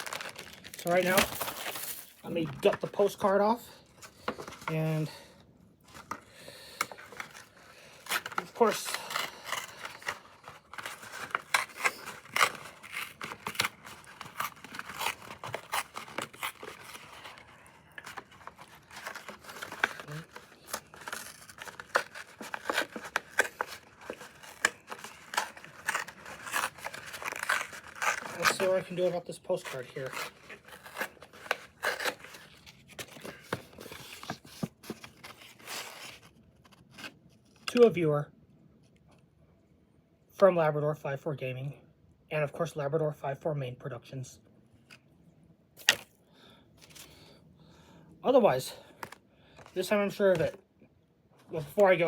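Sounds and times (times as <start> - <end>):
plastic and paper crinkling: 0.0 - 3.3, 5.8 - 37.2, 48.9 - 50.6.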